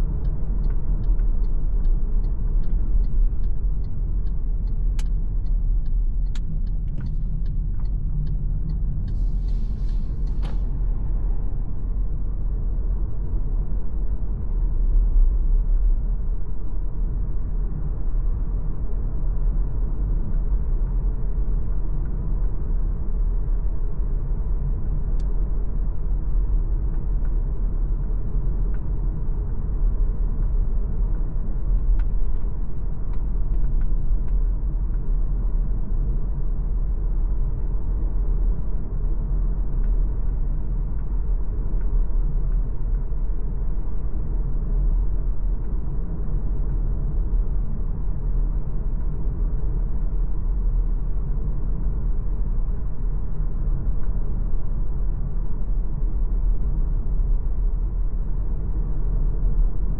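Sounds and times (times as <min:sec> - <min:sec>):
car driving rumble: 0:00.0 - 0:54.6
faint ticks: 0:00.2 - 0:10.6.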